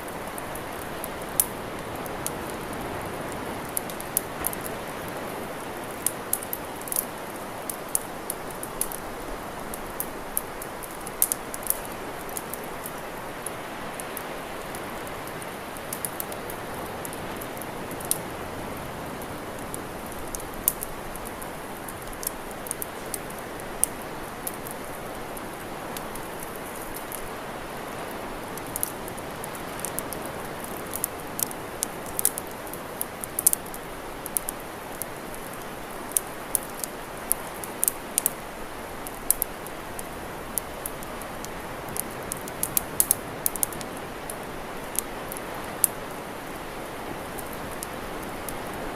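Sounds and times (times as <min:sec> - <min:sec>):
campfire crackling and popping: 0:00.0 - 0:48.9.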